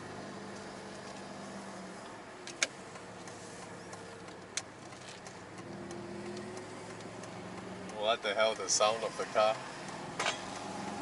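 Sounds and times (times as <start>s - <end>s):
car engine running: 0.0s - 11.0s
sharp clicks: 2.5s - 8.7s.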